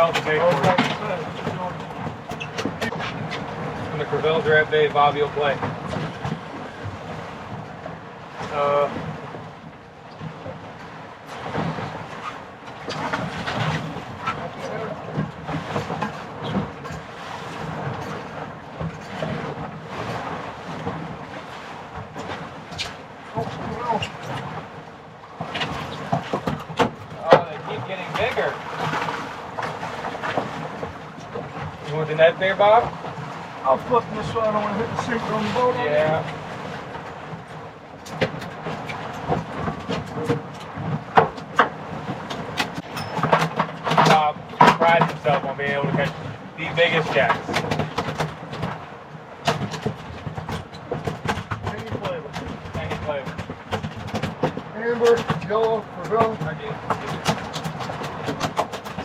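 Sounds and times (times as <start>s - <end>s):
wind buffeting microphone: 0.0s - 59.0s
knocks and clicks: 38.0s - 45.2s, 49.4s - 59.0s.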